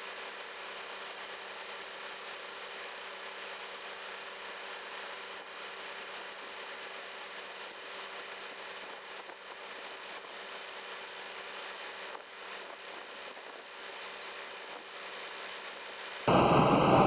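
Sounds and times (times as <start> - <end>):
excavator engine running: 16.3 - 17.0.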